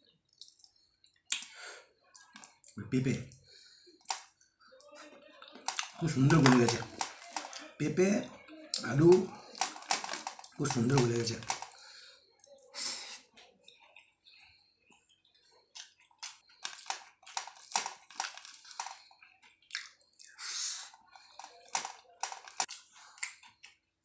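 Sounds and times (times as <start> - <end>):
chewing and lip-smacking: 0.2 - 2.8, 5.4 - 7.8, 12.4 - 23.9.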